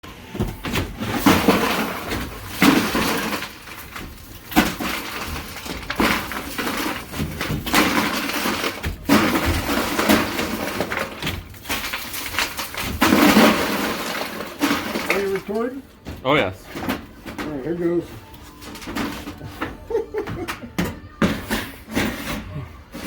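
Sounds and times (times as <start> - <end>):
loud crashing and breaking: 0.1 - 17.6.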